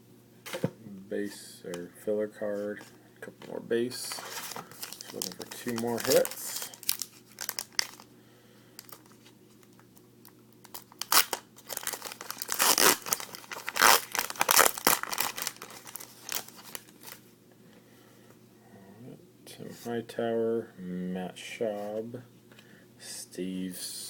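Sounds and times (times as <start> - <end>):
wrapper being torn and crinkled: 4.1 - 8.1, 10.2 - 17.2.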